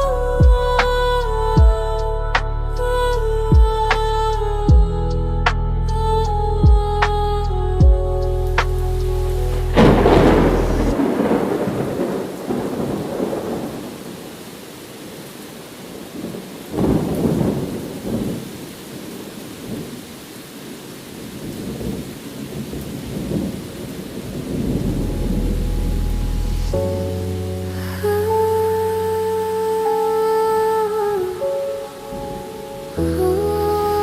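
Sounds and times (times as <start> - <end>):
thunder rumbling: 5.9 - 14.4, 16.2 - 19.1, 21.4 - 29.6
steady rain: 5.9 - 34.0.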